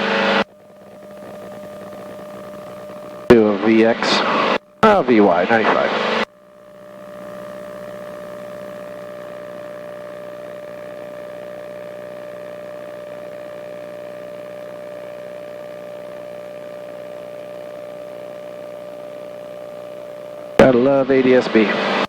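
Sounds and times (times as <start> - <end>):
light aircraft engine drone: 0.0 - 6.3, 19.8 - 22.0.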